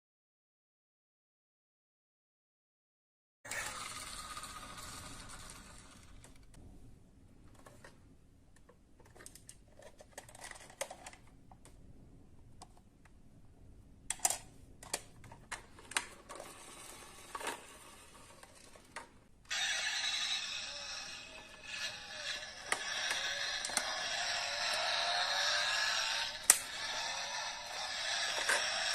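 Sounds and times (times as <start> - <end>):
toy cars clicking and tapping: 15.5 - 28.9.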